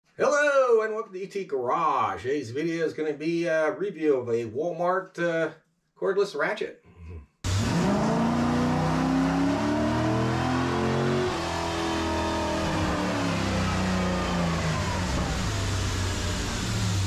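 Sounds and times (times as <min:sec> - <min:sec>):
car engine accelerating hard: 0:07.5 - 0:17.0.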